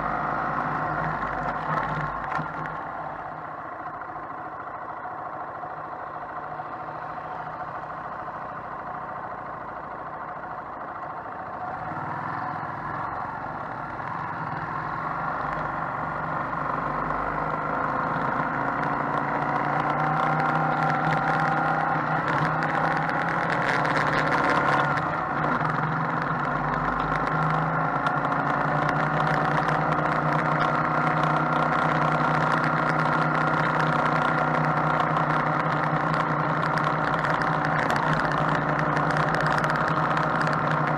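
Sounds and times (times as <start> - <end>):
motorcycle engine droning: 0.0 - 40.9.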